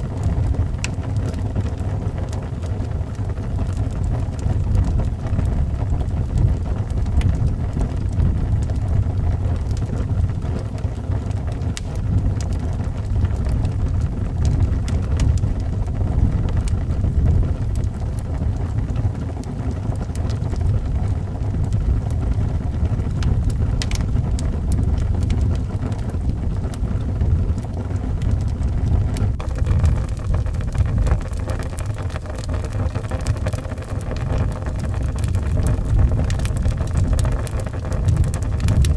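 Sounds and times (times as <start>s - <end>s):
faint wood fire crackles: 0.0s - 38.9s
strong wind howling: 20.4s - 38.9s.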